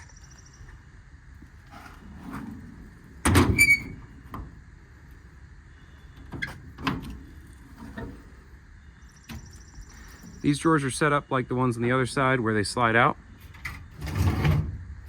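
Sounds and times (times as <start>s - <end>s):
metal door clanking: 3.2s - 4.5s.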